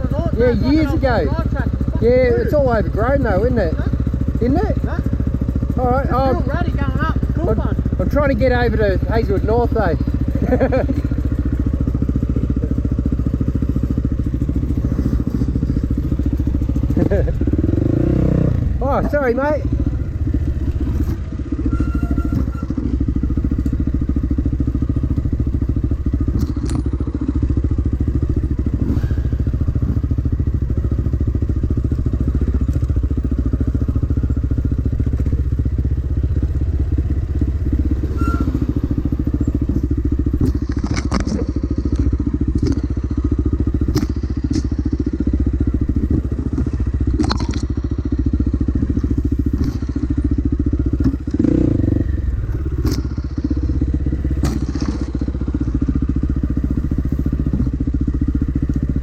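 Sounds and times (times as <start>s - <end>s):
dirt bike engine running: 0.0s - 59.0s
sharp knocks and clatters: 40.4s - 43.0s, 43.9s - 45.0s, 54.4s - 55.2s.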